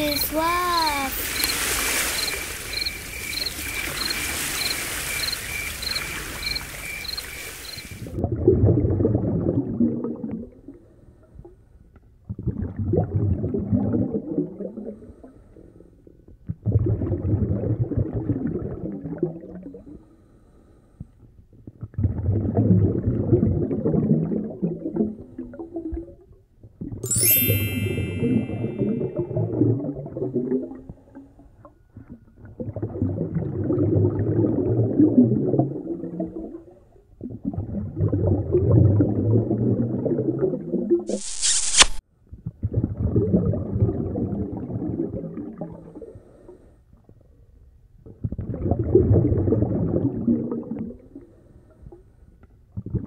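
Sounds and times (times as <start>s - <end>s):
rushing water hiss: 0.0s - 8.0s
low underwater bubbling: 3.6s - 20.0s, 21.4s - 27.0s, 28.6s - 41.1s, 42.4s - 46.1s, 48.0s - 51.4s, 52.7s - 53.0s
faint high pulsing tone: 27.1s - 29.3s.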